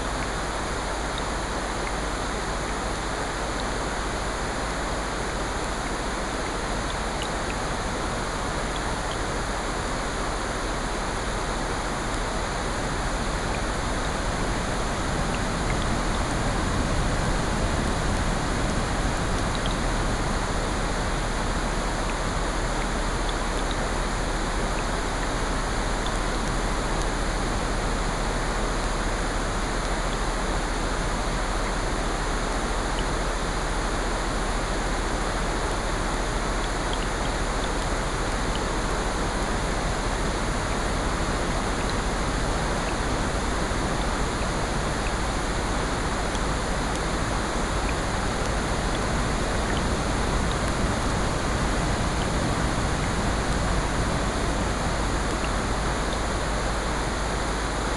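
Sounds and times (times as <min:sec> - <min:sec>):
rain: 0:00.0 - 0:57.9
faint scattered ticks: 0:05.4 - 0:57.8
ocean surf: 0:12.0 - 0:32.8, 0:35.0 - 0:57.9.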